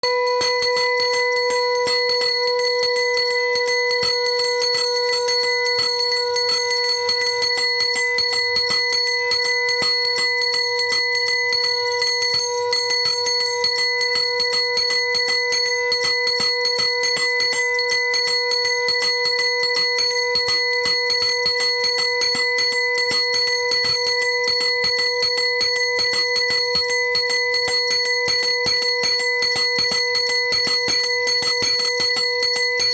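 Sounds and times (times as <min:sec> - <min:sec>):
conch shells blown: 0:00.0 - 0:05.4
bells ringing fast: 0:00.0 - 0:32.9.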